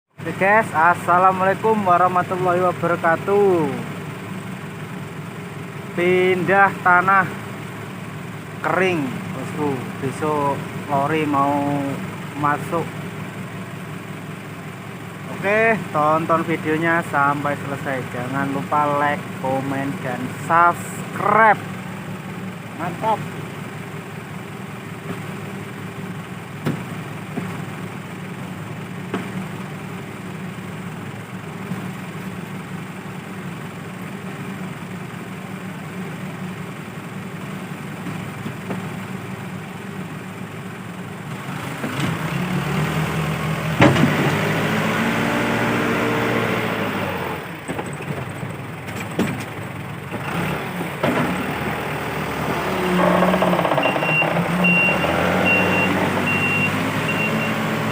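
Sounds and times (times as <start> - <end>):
diesel engine running and revving: 0.1 - 57.9
sharp engine knocks: 25.0 - 25.4, 26.6 - 27.7, 29.1 - 29.5, 38.0 - 39.0, 43.7 - 44.4, 47.6 - 51.8, 52.5 - 55.0.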